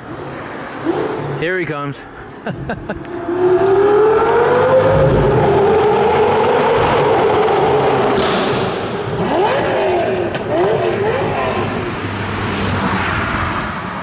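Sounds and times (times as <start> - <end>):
sports car accelerating past: 3.0 - 14.0.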